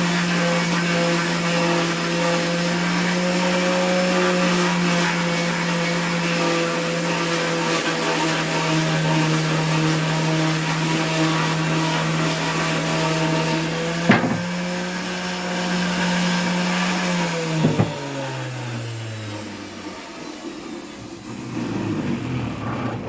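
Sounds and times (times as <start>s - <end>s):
electric sander sanding wood: 0.0s - 21.5s
sharp knocks: 14.0s - 14.8s, 17.6s - 18.1s.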